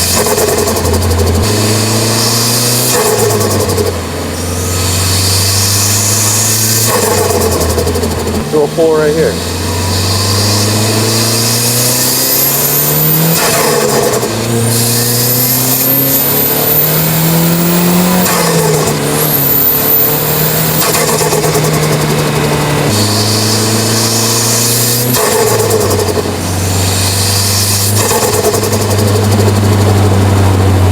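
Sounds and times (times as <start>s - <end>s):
car engine accelerating: 0.0s - 30.9s
turbo whistle: 9.6s - 21.9s.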